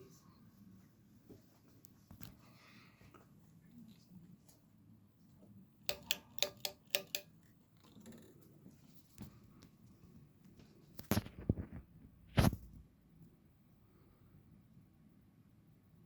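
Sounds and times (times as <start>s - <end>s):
sharp ringing clicks: 5.9s - 7.5s.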